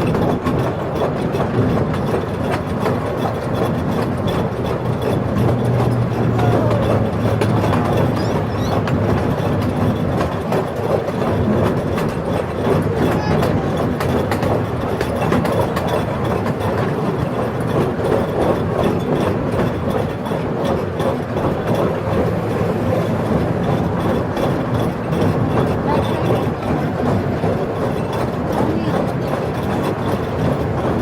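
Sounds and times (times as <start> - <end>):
passenger cars rattling: 0.0 - 31.0
train engine rumbling: 0.0 - 31.0.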